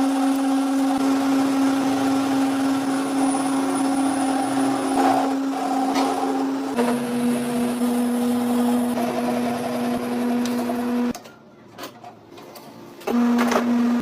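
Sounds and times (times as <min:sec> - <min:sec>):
electric motor humming: 0:00.0 - 0:11.1.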